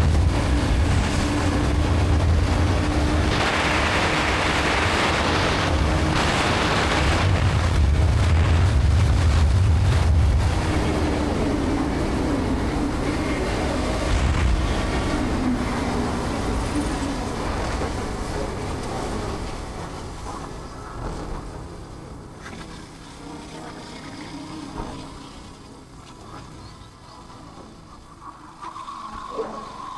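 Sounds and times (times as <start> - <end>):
wind buffeting microphone: 0.0 - 22.1.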